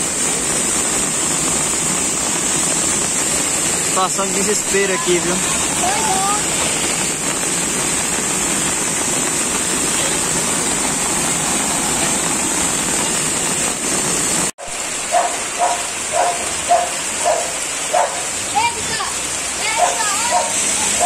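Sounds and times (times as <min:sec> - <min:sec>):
heavy rain: 0:00.0 - 0:21.0
running floodwater: 0:00.0 - 0:21.0
dog barking: 0:15.1 - 0:18.4, 0:19.8 - 0:21.0.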